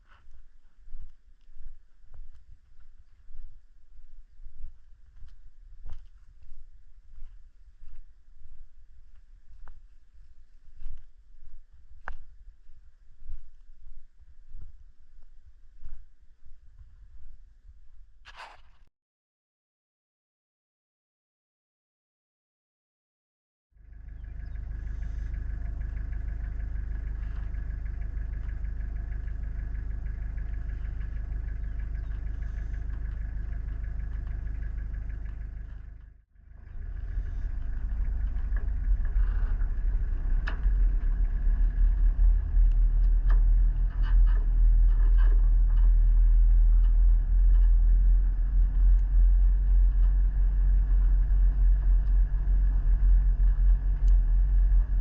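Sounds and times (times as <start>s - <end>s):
vehicle engine and road rumble: 0.0s - 18.8s, 23.8s - 55.0s.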